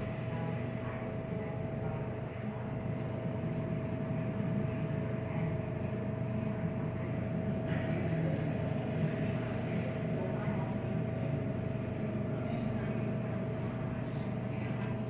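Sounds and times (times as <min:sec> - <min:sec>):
car wash machinery drone: 0:00.0 - 0:15.0.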